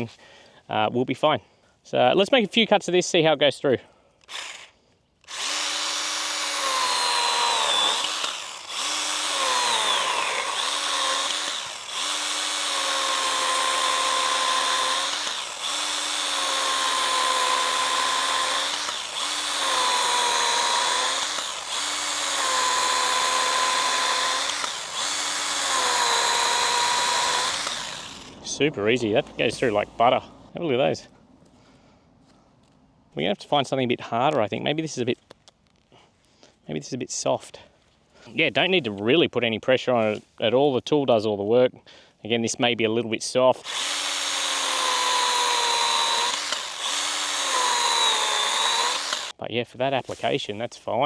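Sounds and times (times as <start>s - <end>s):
battery pruner motor whining: 4.2s - 28.7s, 43.6s - 49.4s
saw cutting through branches: 4.2s - 28.7s, 43.6s - 49.4s.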